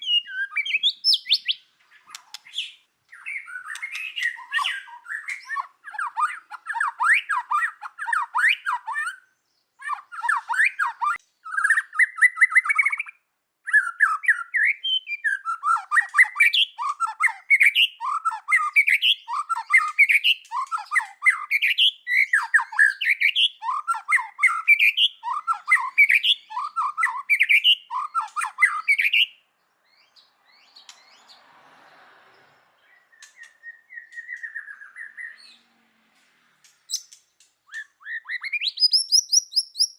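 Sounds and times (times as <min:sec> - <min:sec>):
bird singing whistled phrases: 0:00.0 - 0:09.2, 0:09.8 - 0:29.4, 0:32.9 - 0:35.6, 0:36.9 - 0:39.9.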